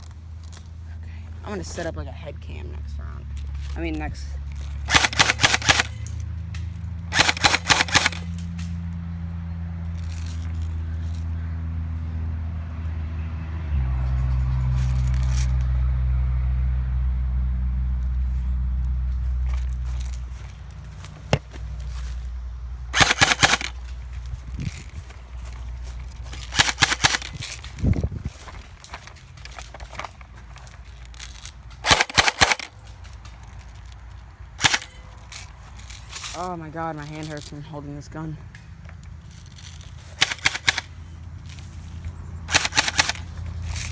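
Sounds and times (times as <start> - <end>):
engine running with low hum: 0.0 - 43.9
airsoft gun cracks: 4.9 - 8.9, 22.9 - 24.3, 26.3 - 30.2, 31.2 - 33.7, 34.6 - 36.4, 40.2 - 40.9, 42.5 - 43.9.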